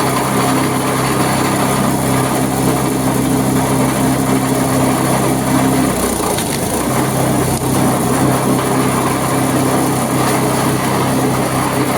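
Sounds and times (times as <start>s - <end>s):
chipper engine running: 0.0s - 11.9s
branches crunching and splintering: 6.0s - 7.8s.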